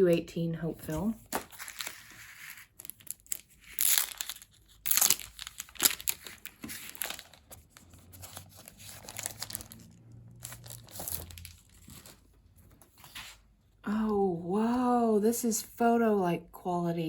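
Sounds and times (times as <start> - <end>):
packaging crinkling and rustling: 0.9 - 13.4.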